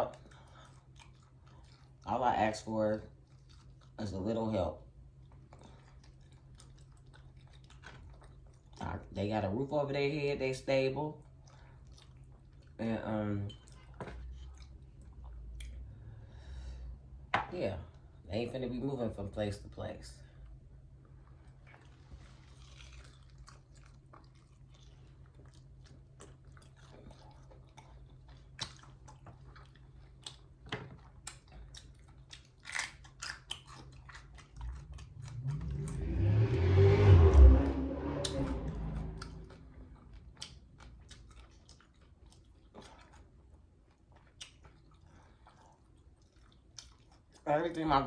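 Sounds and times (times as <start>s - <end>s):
chewing chicken wings: 0.0s - 4.4s, 5.1s - 9.2s, 11.1s - 15.9s, 21.1s - 36.0s, 39.2s - 47.8s
loud rushing sound: 35.4s - 40.0s.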